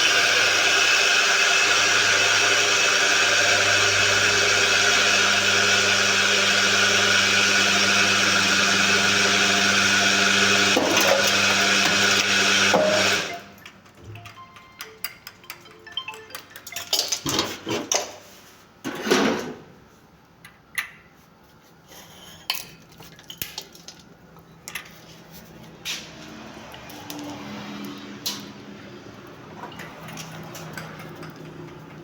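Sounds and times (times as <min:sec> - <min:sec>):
clatter of hard objects: 0:15.1 - 0:18.2.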